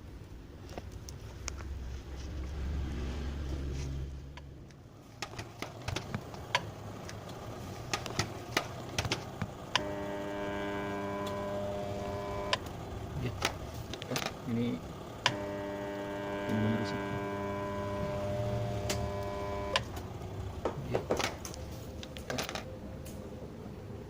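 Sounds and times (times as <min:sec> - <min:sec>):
washing machine motor humming: 0:04.2 - 0:24.0
clicks and knocks of handled parts: 0:20.6 - 0:23.2.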